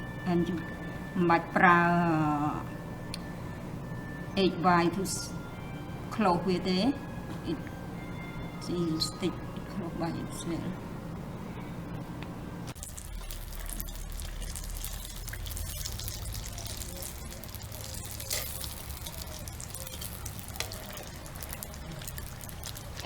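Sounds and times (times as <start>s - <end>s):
food sizzling in hot oil: 12.8s - 23.0s.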